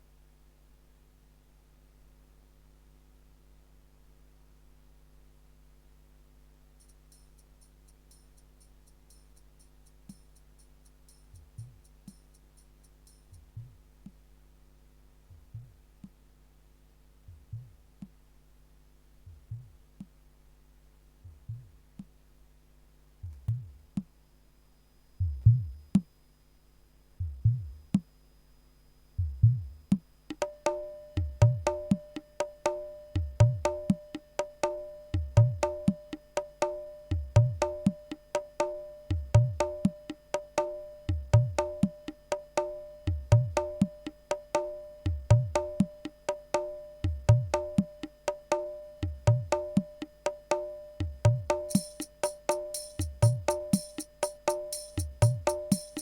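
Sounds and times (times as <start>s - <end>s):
wood-block-like percussion pattern: 6.8s - 14.2s, 23.2s - 24.1s, 29.2s - 56.0s.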